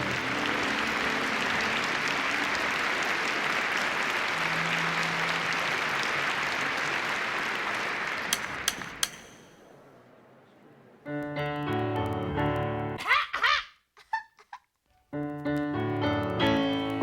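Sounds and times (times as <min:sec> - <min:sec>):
audience applauding: 0:00.0 - 0:09.4
sharp clicks: 0:08.3 - 0:09.5.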